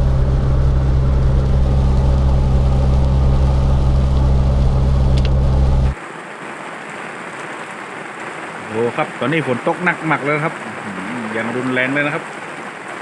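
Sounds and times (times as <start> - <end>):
loud low machine drone: 0.0 - 6.0
heavy rain hiss: 0.0 - 13.0.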